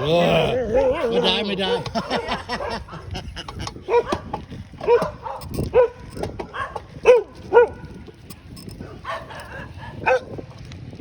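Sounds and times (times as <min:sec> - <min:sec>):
dog barking: 0:00.6 - 0:03.1, 0:03.8 - 0:08.0, 0:08.8 - 0:10.4.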